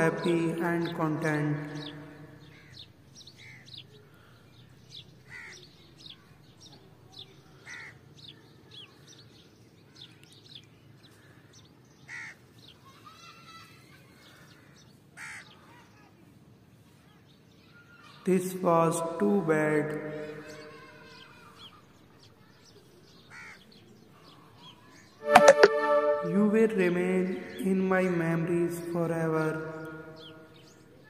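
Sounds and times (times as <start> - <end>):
birds chirping: 0.0 - 7.3, 28.8 - 30.8.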